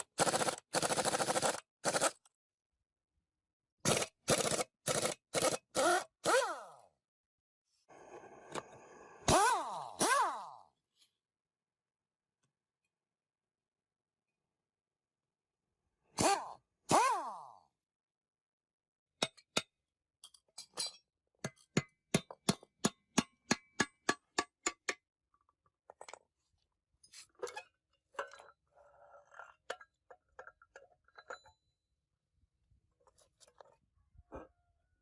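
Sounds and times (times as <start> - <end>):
metal tools clinking: 29.3 - 31.8.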